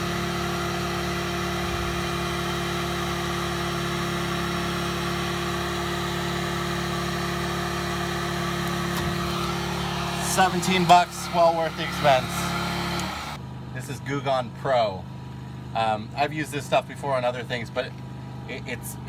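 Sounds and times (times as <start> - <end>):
heat gun blowing air: 8.6 - 13.4.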